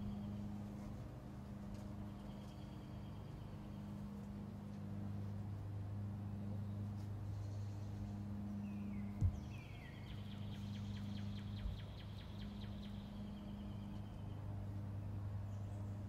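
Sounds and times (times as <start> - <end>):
steady low hum: 0.0 - 16.0
small bird singing trills: 8.6 - 14.4.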